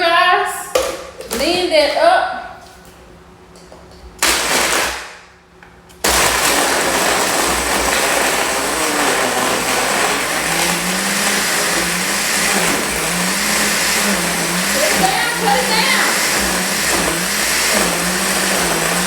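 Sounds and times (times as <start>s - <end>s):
blender crushing ice: 4.2s - 5.2s, 6.0s - 19.0s.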